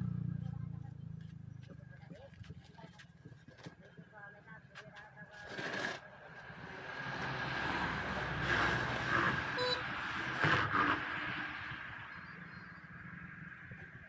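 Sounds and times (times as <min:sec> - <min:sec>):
road vehicle driving past: 0:06.1 - 0:13.7.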